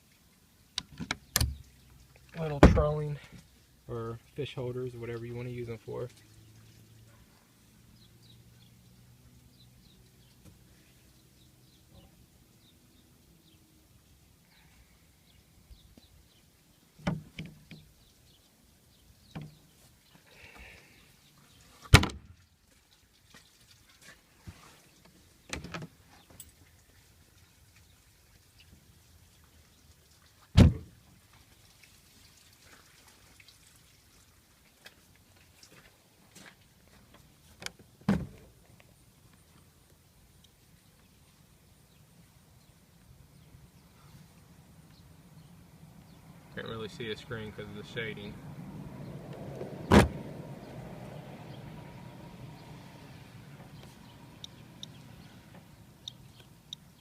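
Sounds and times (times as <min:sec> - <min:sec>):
heavy thump: 0:02.6 - 0:02.8.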